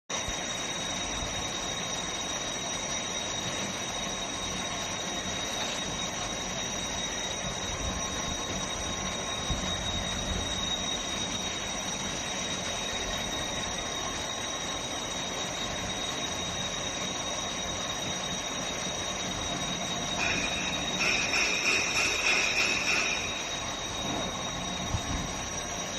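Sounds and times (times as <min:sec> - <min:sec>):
high-pitched whines: 0:00.1 - 0:25.9.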